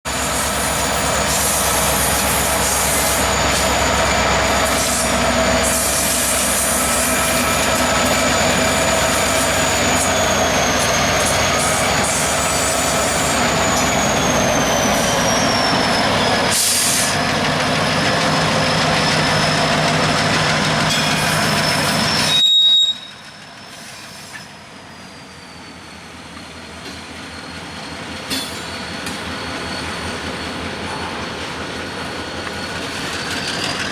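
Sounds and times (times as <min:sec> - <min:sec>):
freight train rolling on rails: 0:00.0 - 0:33.9
high wheel squeal: 0:00.1 - 0:33.9.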